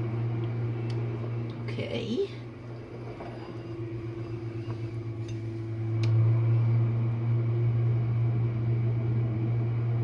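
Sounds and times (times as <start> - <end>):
dishwasher motor hum: 0.0 - 10.0.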